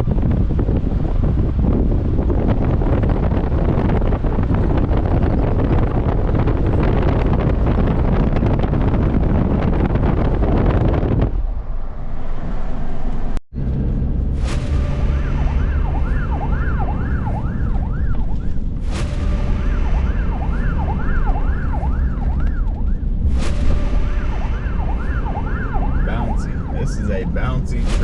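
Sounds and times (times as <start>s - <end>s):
vehicle rumble on road: 0.0s - 28.0s
siren yelping: 15.1s - 18.7s, 19.5s - 23.2s, 23.8s - 28.0s.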